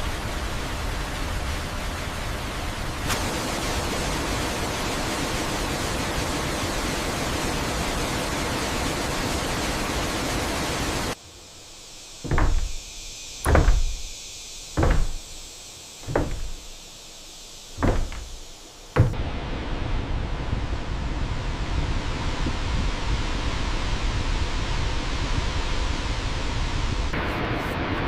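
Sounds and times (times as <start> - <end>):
heavy dull knocks: 12.2 - 12.8, 13.4 - 14.1, 14.8 - 15.4, 16.0 - 16.8, 17.8 - 19.2
steady rushing noise: 12.2 - 17.0, 17.6 - 26.5.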